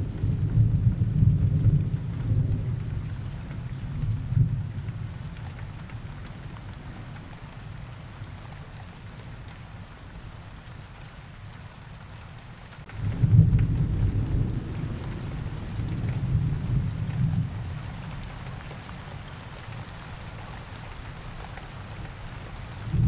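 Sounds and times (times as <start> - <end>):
steady rain: 0.0 - 23.0
thunder rumbling: 12.9 - 18.0.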